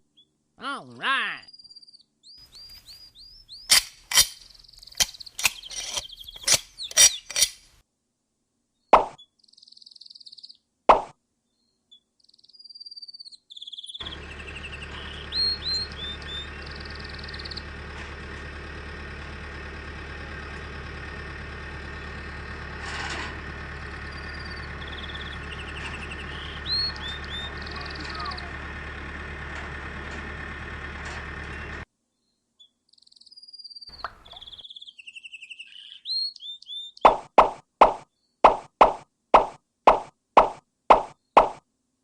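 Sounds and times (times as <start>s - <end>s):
birds chirping: 0.6s - 7.7s, 13.5s - 31.8s, 33.9s - 37.2s
bird-like chirps: 1.1s - 7.6s, 8.8s - 10.6s, 11.6s - 17.7s, 23.9s - 28.6s, 32.6s - 37.2s
sharp plopping pops: 9.0s - 9.2s, 37.1s - 41.6s
low hum: 14.0s - 31.8s.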